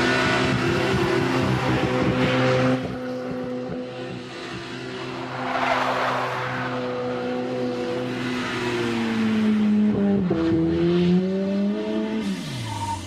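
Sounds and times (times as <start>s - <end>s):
tyres spinning and spraying snow: 4.9s - 8.8s
car engine revving hard: 4.9s - 12.9s.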